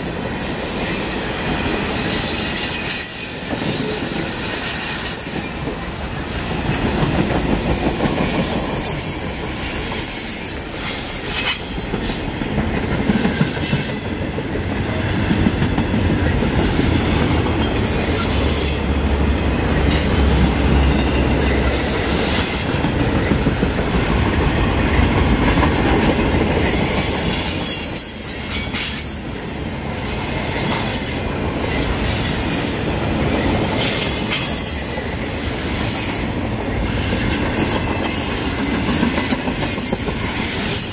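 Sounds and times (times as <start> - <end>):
train wheels rumbling on rail: 0.0 - 40.9
high-pitched wheel squeals: 1.1 - 5.5.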